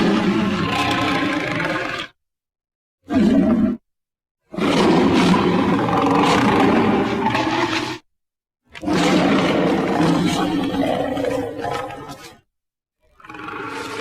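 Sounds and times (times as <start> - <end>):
dragon roar: 13.1 - 14.0.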